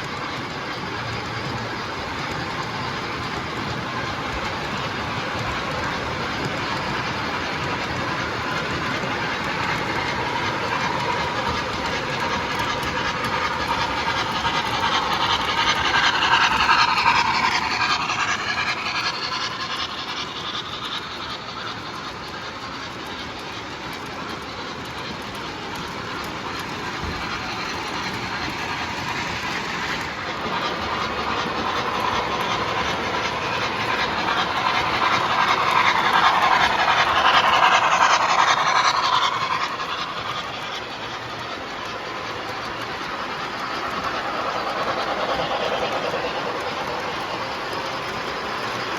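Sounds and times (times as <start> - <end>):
model train wheels clattering: 0.0 - 48.9.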